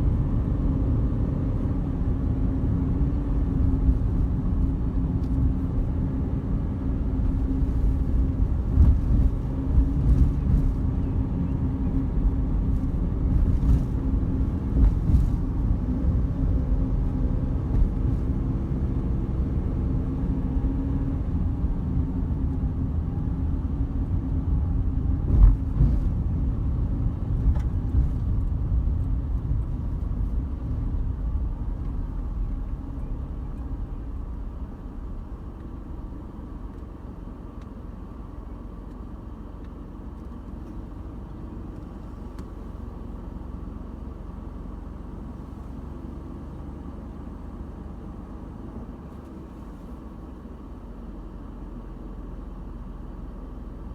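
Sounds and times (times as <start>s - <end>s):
car engine and road rumble: 0.0s - 53.9s.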